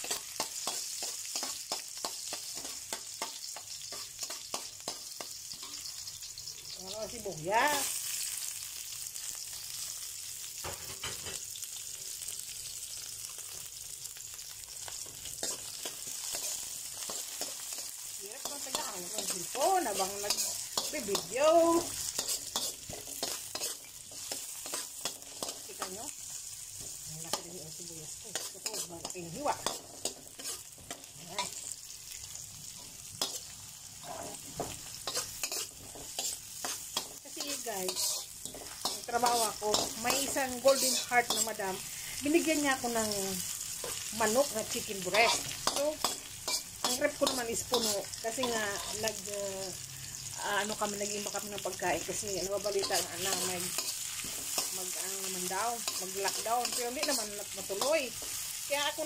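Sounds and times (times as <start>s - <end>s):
spatula scraping a pan: 0.0s - 6.0s, 14.9s - 26.0s, 28.2s - 49.2s, 50.6s - 59.0s
onion and garlic sizzling in oil: 0.0s - 59.0s.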